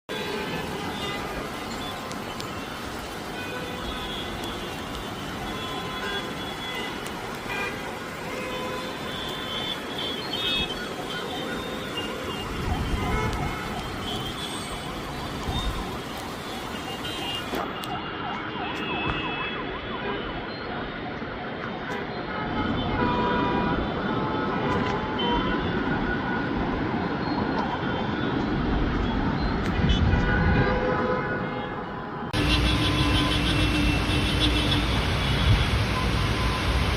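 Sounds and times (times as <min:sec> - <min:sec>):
traffic engines and tyre noise: 0:00.1 - 0:36.9
vehicle horns honking: 0:05.5 - 0:14.8, 0:29.8 - 0:35.7.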